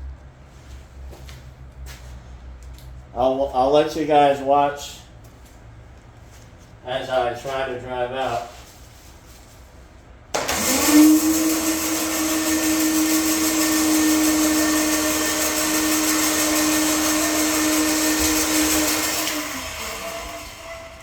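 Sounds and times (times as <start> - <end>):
mower engine whining: 10.4 - 21.0.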